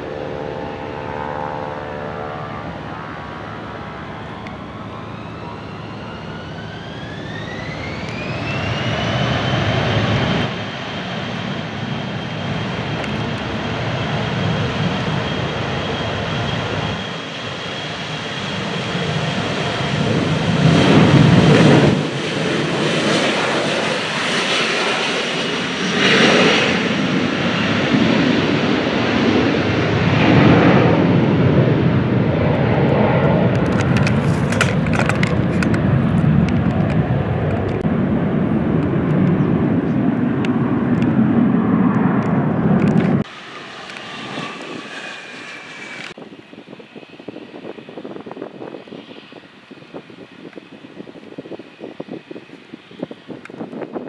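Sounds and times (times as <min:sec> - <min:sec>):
jet engines spooling up: 0:02.4 - 0:54.0.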